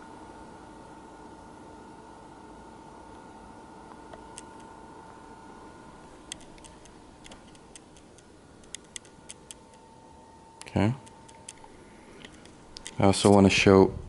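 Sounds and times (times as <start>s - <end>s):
projector fan hiss and whine: 0.0s - 14.0s
light irregular clicks: 6.3s - 9.8s.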